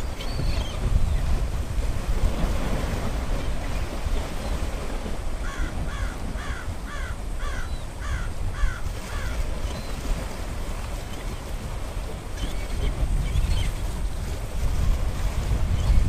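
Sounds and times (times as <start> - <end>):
wind rumble on microphone: 0.0 - 16.0
crow cawing: 5.4 - 9.3.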